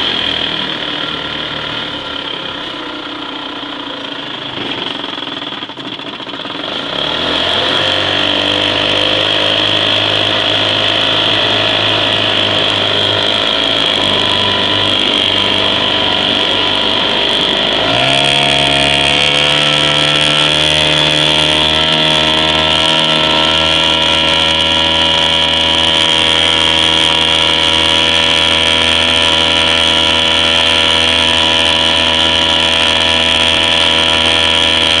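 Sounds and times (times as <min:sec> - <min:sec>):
two-stroke outboard motor revving: 0:00.0 - 0:35.0.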